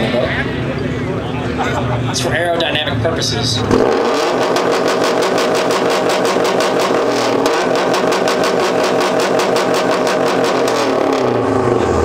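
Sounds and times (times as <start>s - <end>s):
car engine at high revs: 3.5s - 12.0s.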